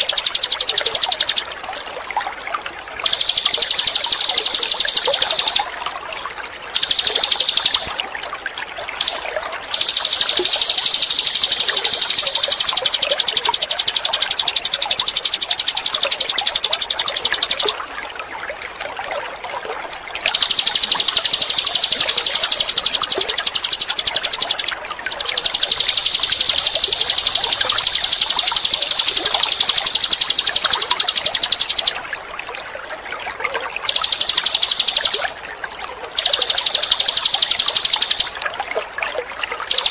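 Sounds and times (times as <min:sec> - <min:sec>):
songbird high-pitched trills: 0:00.0 - 0:01.5, 0:03.0 - 0:05.8, 0:06.8 - 0:08.0, 0:08.9 - 0:17.8, 0:20.3 - 0:32.1, 0:33.8 - 0:35.4, 0:36.1 - 0:38.4, 0:39.6 - 0:39.9
trickling water: 0:00.0 - 0:39.9.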